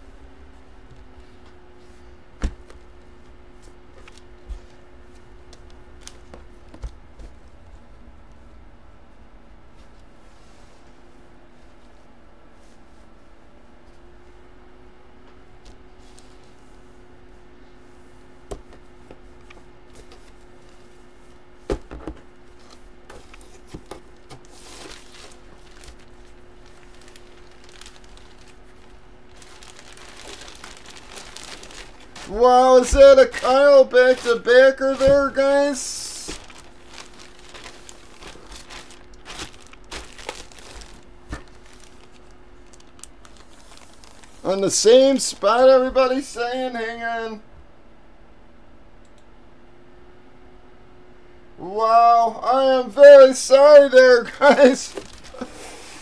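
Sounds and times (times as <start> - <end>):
faint steady hum: 0.0 - 56.0
packaging rustle: 22.6 - 44.5, 54.6 - 56.0.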